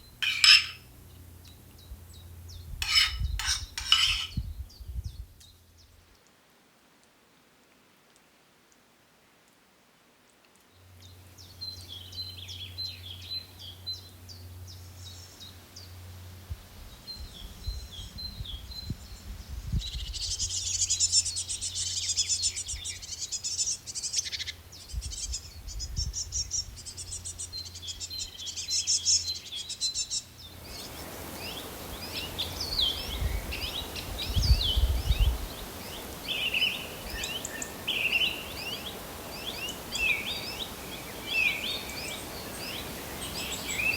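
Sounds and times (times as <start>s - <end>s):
background hiss: 0.0s - 43.9s
birds chirping and singing: 0.2s - 0.8s, 2.2s - 4.8s, 19.8s - 43.9s.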